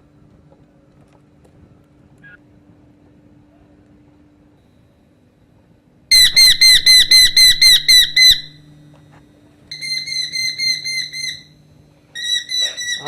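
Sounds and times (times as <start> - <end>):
bird calling high-pitched notes: 6.1 - 8.7, 9.7 - 13.0.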